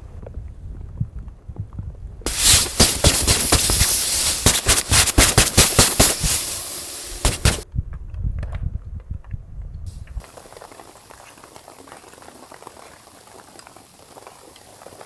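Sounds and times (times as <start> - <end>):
loud dense crackling: 2.3 - 7.6
steady hiss: 2.3 - 7.6, 9.9 - 15.0.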